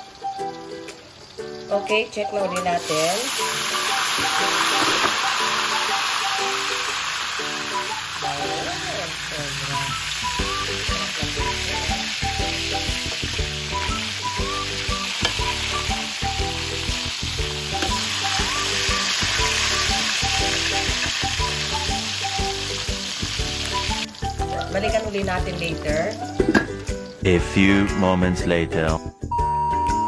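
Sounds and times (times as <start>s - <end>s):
meat sizzling in oil: 2.8s - 27.2s
music with steady beat: 9.9s - 30.0s.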